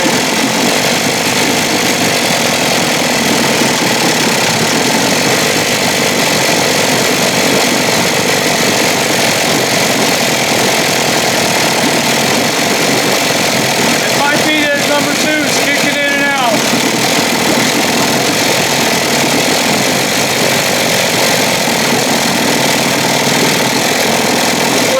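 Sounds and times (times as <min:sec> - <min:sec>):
outboard motor running rough: 0:00.0 - 0:24.9.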